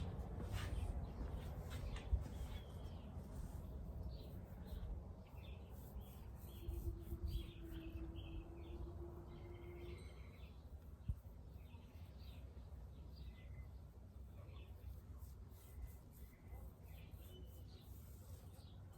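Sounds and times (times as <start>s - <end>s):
small birds chirping: 0.6s - 18.9s.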